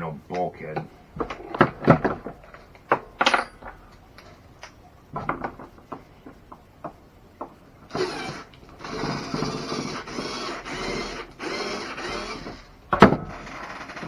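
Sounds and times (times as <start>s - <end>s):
small parts and tools clinking: 0.3s - 6.4s.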